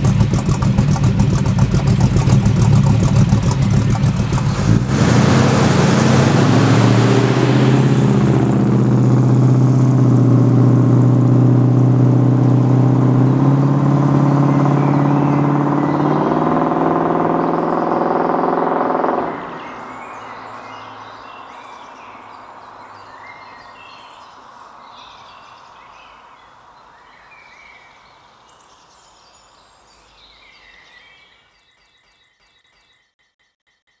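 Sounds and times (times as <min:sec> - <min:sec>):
car engine running: 0:00.0 - 0:19.8
faint birds chirping: 0:13.0 - 0:34.0.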